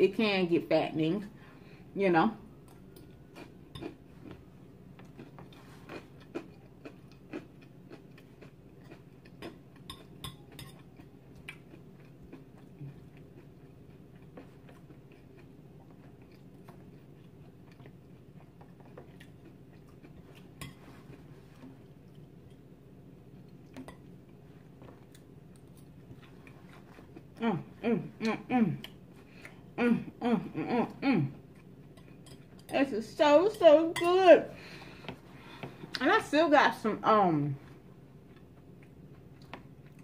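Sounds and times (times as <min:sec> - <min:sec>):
faint chewing of salad: 0:02.5 - 0:29.8, 0:30.9 - 0:32.9, 0:37.6 - 0:40.0.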